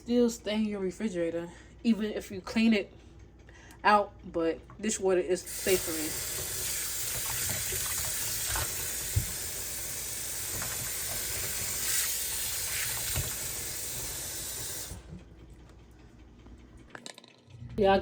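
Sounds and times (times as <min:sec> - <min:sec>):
faucet running into pan: 0:05.5 - 0:15.0.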